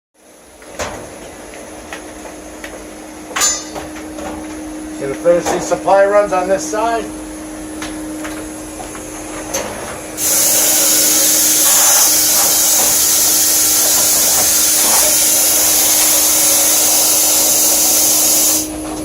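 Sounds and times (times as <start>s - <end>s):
vacuum humming: 0.4s - 19.0s
high rush of air: 5.8s - 18.8s.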